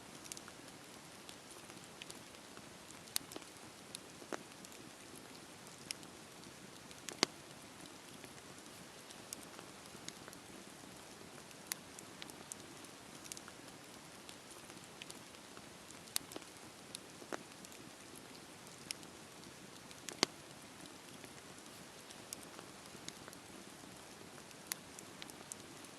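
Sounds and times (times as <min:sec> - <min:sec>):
campfire crackling: 0:00.0 - 0:25.9
sharp pops of burning wood: 0:06.8 - 0:07.4, 0:19.8 - 0:20.4.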